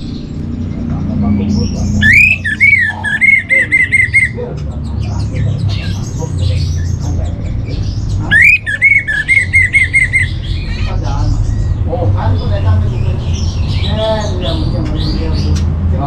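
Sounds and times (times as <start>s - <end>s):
thrush whistled song: 2.0s - 4.4s, 8.3s - 10.4s.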